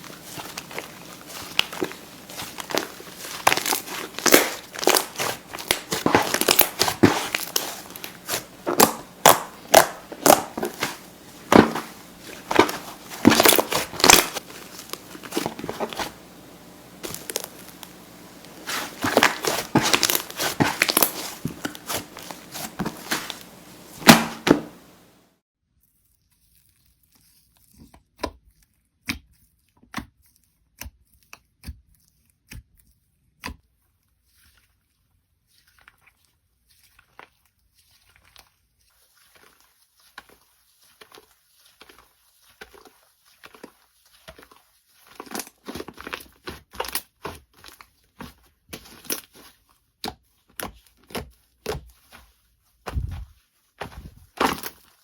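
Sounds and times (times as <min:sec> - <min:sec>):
slime squeezed by hand crackling: 0:00.0 - 0:25.1.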